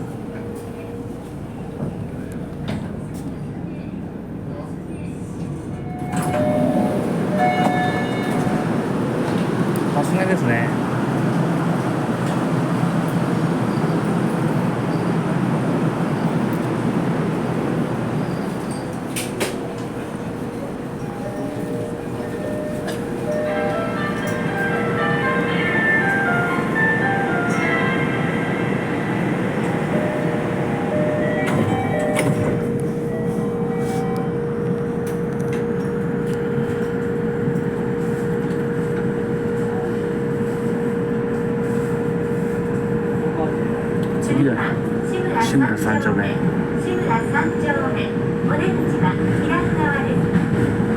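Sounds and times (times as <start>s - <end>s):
subway train rumbling on rails: 0.0s - 50.9s.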